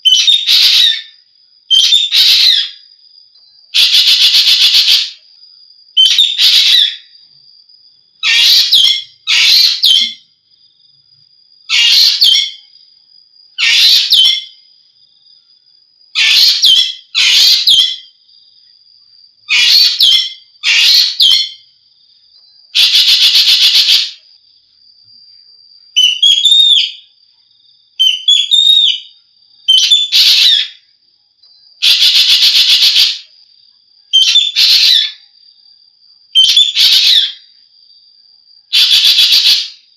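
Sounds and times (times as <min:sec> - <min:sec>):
thin steady high tone: 0:21.4 - 0:30.1.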